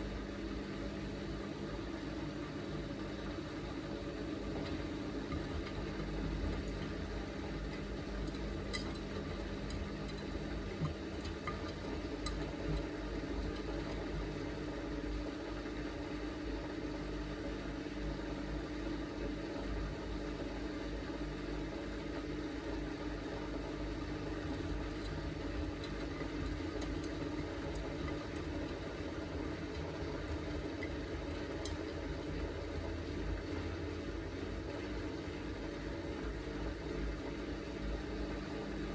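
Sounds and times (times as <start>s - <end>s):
drain pump humming: 4.1s - 14.6s, 19.6s - 20.1s, 23.6s - 38.9s.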